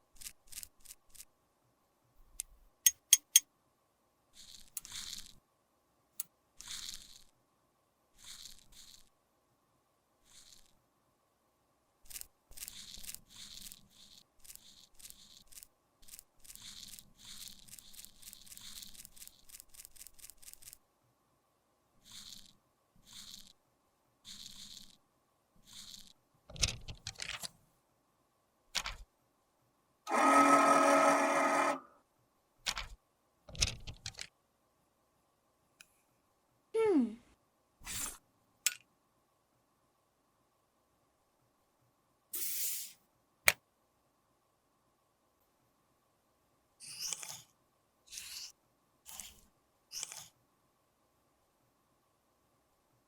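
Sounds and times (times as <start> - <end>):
tool scraping makeup: 46.8 - 47.5, 48.1 - 50.3.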